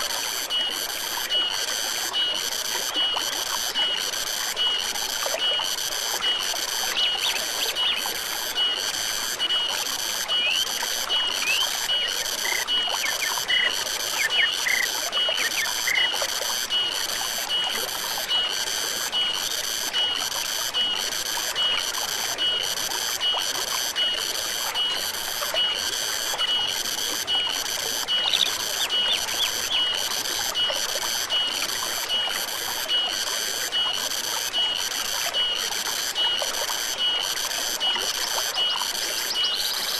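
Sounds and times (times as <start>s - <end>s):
stream running: 0.0s - 39.9s
bird chirps: 28.2s - 29.9s.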